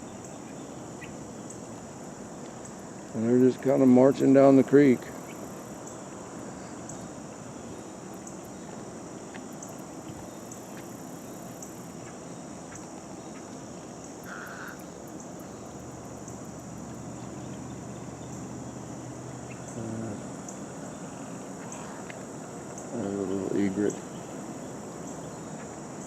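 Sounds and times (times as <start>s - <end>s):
frogs and insects trilling: 0.0s - 26.0s
low steady hum: 14.8s - 26.0s.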